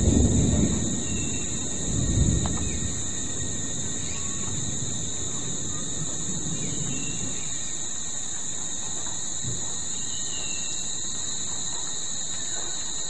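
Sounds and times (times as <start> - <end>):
thunder roll: 0.0 - 7.9
shrill insect chorus: 0.0 - 13.0.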